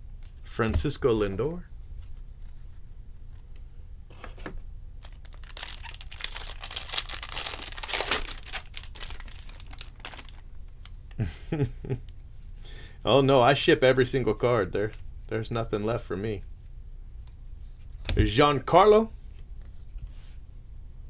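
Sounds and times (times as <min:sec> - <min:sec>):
foil wrapper crinkling and tearing: 0:05.0 - 0:11.1.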